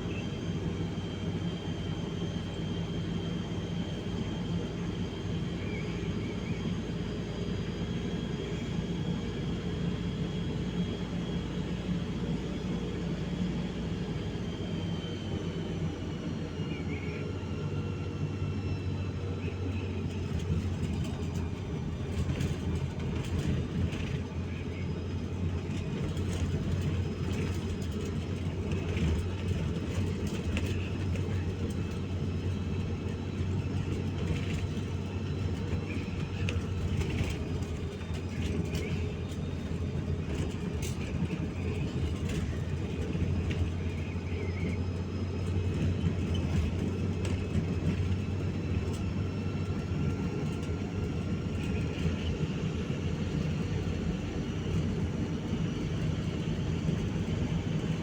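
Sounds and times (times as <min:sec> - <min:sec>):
steady low rumble: 0:16.5 - 0:58.0.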